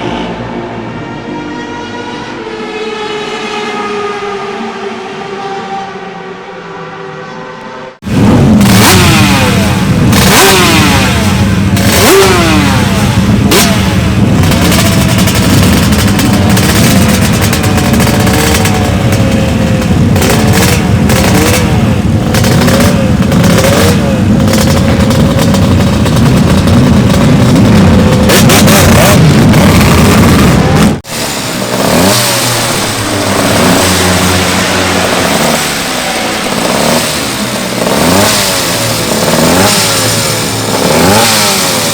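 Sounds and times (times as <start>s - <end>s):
motorcycle engines revving: 0.0s - 41.9s.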